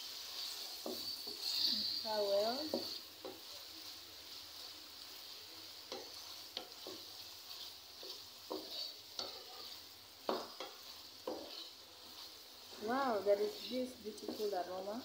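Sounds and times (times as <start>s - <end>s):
food sizzling in hot oil: 0.0s - 15.0s
wooden spatula scraping a pan: 0.0s - 15.0s.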